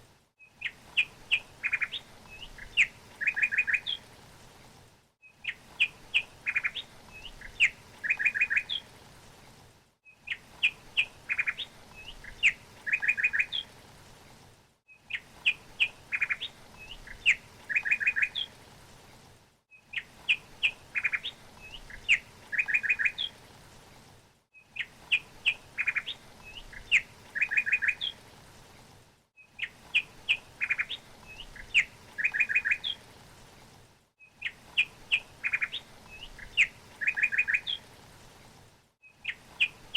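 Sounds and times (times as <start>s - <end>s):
faint steady hiss: 0.0s - 39.9s
songbird chirping and trilling: 0.4s - 4.0s, 5.3s - 8.9s, 10.1s - 13.7s, 15.0s - 18.5s, 19.8s - 23.4s, 24.6s - 28.2s, 29.4s - 33.0s, 34.2s - 37.9s, 39.1s - 39.8s.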